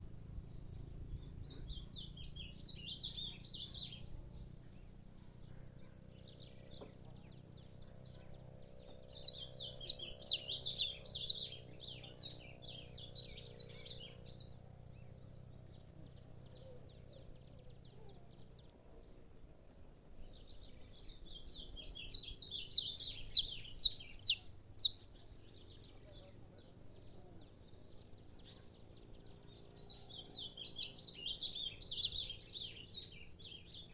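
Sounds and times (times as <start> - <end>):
finch singing high chirping notes: 1.5 - 4.2, 6.2 - 14.3, 21.2 - 26.8, 28.4 - 33.9.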